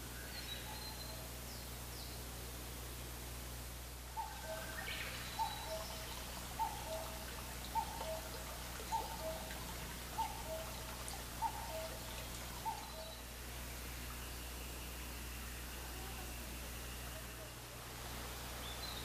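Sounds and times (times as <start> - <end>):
faint birds chirping: 4.1 - 19.0.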